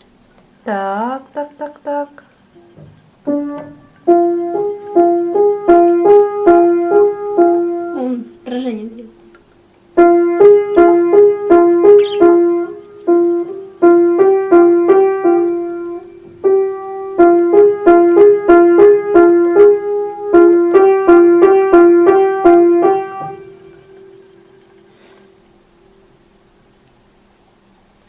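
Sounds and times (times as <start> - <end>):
piano tune: 2.5 - 9.0, 9.9 - 24.8.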